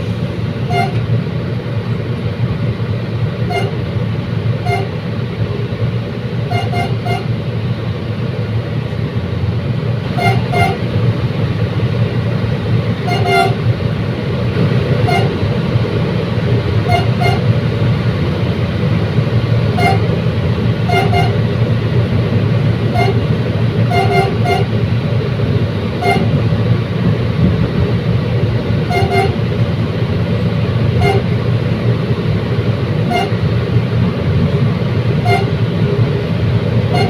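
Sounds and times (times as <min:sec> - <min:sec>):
train rumbling: 0:00.0 - 0:37.0
train horn toots: 0:00.6 - 0:01.1, 0:03.4 - 0:03.9, 0:04.6 - 0:05.0, 0:06.5 - 0:07.4, 0:10.1 - 0:10.9, 0:13.0 - 0:13.7, 0:15.0 - 0:15.4, 0:16.8 - 0:17.5, 0:19.7 - 0:20.1, 0:20.8 - 0:21.4, 0:22.9 - 0:23.2, 0:23.9 - 0:24.7, 0:26.0 - 0:26.4, 0:28.8 - 0:29.4, 0:30.9 - 0:31.4, 0:33.0 - 0:33.5, 0:35.2 - 0:35.6.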